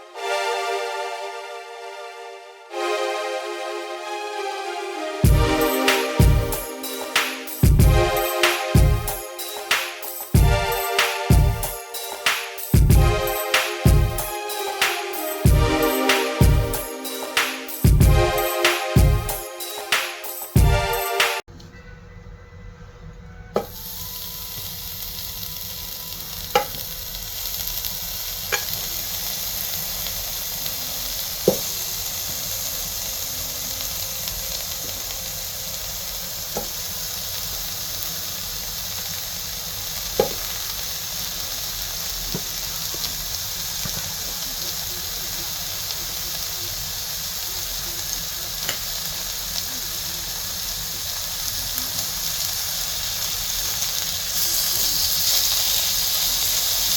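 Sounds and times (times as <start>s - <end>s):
bacon sizzling in a pan: 23.7s - 56.9s.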